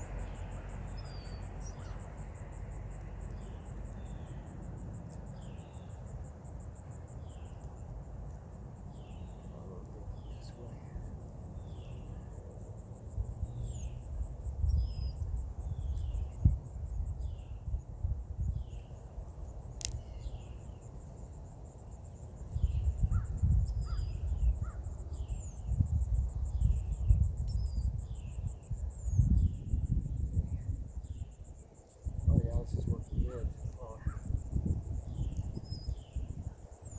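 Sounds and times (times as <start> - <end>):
insect chorus trilling: 0.0 - 36.9
sharp click: 19.8 - 20.1.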